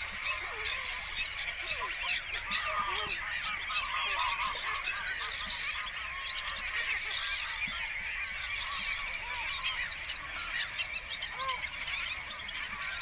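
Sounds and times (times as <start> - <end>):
flock of birds calling: 0.0 - 13.0.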